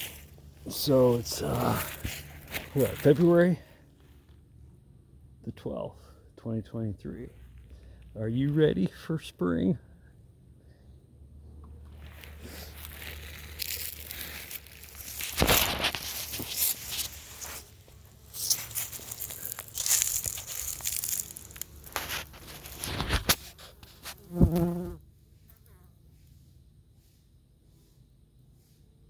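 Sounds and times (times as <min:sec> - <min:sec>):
rustling and knocking at beehive: 0:12.1 - 0:25.0
honey bee buzzing: 0:24.0 - 0:25.0.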